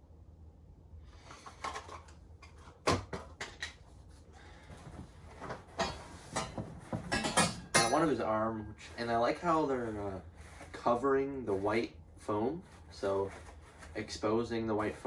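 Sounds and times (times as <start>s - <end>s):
packaging knocks and scraping: 1.3s - 3.8s, 4.6s - 7.6s, 8.8s - 15.0s.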